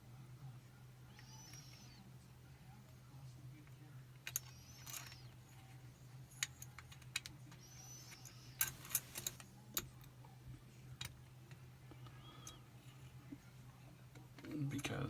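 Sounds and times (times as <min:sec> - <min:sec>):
lock-picking metallic clicks: 0:08.6 - 0:09.4.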